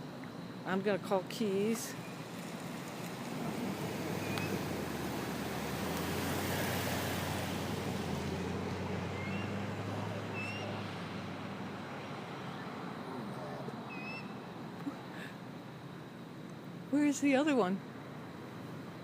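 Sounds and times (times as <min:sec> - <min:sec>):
traffic rumble: 0:00.0 - 0:19.0
vehicle engine hum: 0:00.0 - 0:19.0
faint bird chirps: 0:09.2 - 0:09.6, 0:10.3 - 0:10.8, 0:13.4 - 0:14.4.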